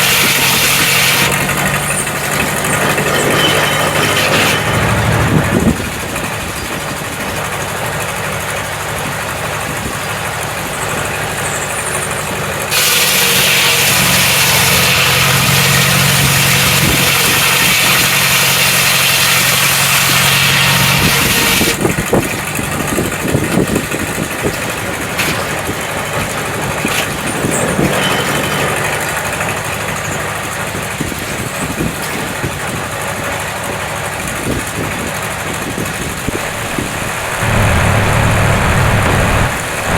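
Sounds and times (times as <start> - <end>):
sawmill engine running: 0.0 - 31.9, 32.6 - 39.9
saw hissing through log: 36.2 - 39.9.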